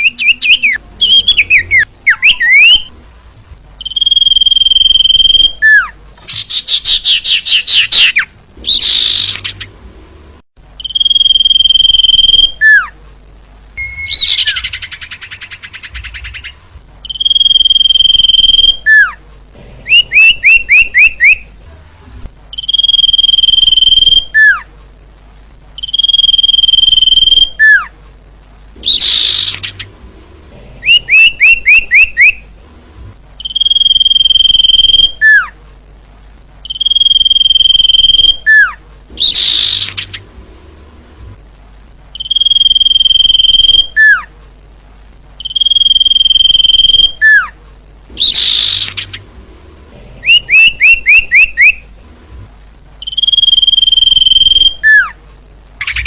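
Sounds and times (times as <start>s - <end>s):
bird whistles and trills: 0.0s - 2.9s, 3.8s - 9.6s, 10.8s - 12.9s, 13.8s - 19.1s, 19.9s - 21.4s, 25.8s - 27.9s, 30.8s - 32.4s, 33.4s - 35.5s, 36.7s - 40.2s, 42.2s - 44.3s, 45.4s - 47.5s, 48.2s - 49.2s, 50.2s - 51.8s, 53.0s - 55.2s.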